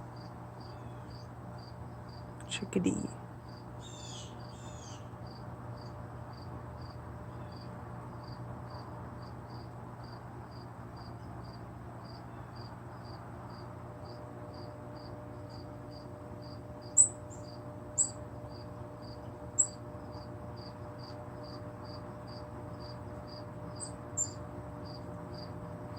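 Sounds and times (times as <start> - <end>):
sharp high bird calls: 3.8 - 5.0.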